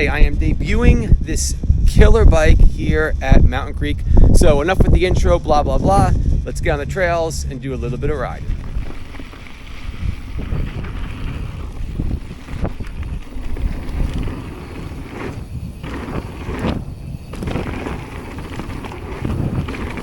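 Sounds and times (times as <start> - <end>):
bike tyre noise: 0.0 - 20.0
wind buffeting microphone: 0.0 - 20.0
bike knocks and rattles: 8.4 - 20.0.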